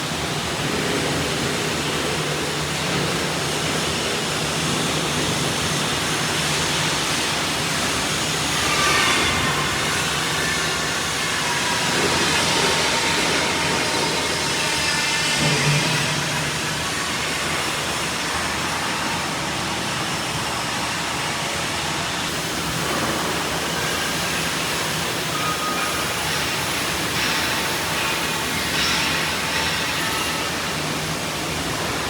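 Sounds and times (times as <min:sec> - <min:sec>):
welding hiss: 0:22.3 - 0:32.0.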